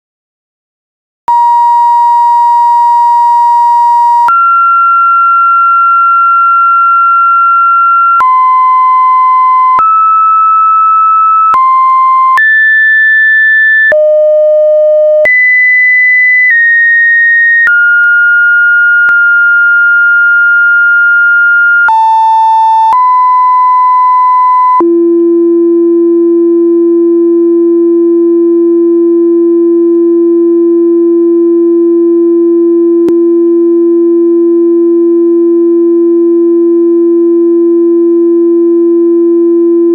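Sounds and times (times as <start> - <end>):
electronic beep tones: 1.3 - 4.4, 7.4 - 24.8.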